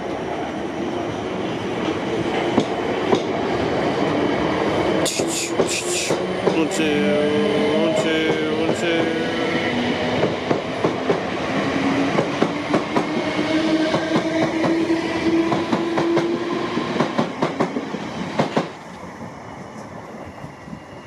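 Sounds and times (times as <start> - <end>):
train hum: 0.0 - 21.0
train wheels clicking over rail joints: 5.1 - 6.7, 15.5 - 19.0.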